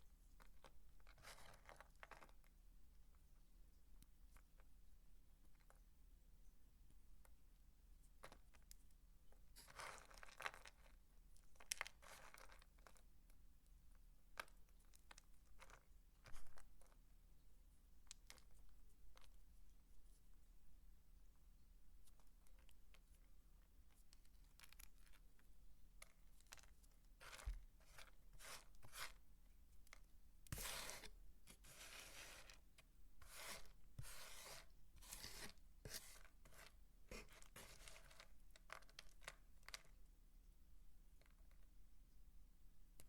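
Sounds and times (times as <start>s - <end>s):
dry soap crunching: 33.2s - 39.9s.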